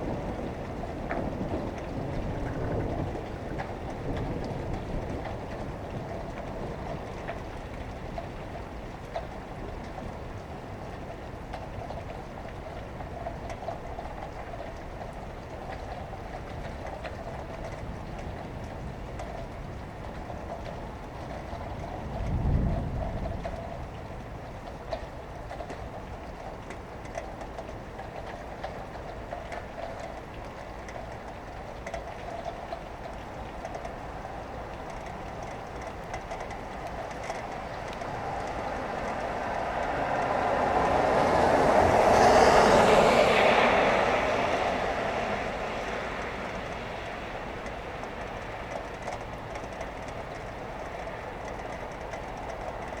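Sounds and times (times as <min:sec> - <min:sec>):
faint drip ticks: 0:00.0 - 0:53.0
steady rain: 0:00.0 - 0:53.0
road traffic passing: 0:26.8 - 0:53.0.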